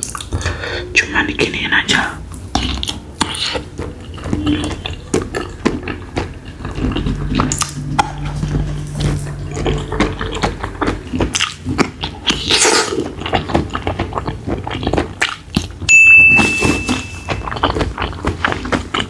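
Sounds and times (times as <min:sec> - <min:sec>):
high steady tone: 0:15.9 - 0:17.5.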